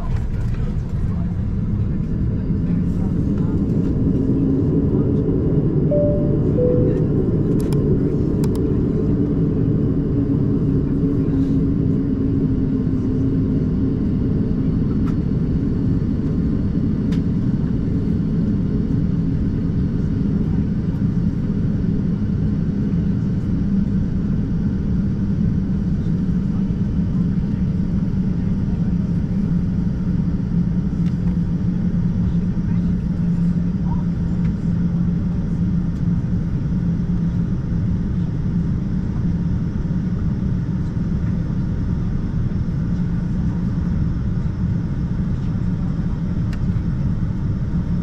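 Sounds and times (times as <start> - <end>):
airliner cabin rumble: 0.0 - 48.0
low hum shifting in pitch: 5.9 - 7.8.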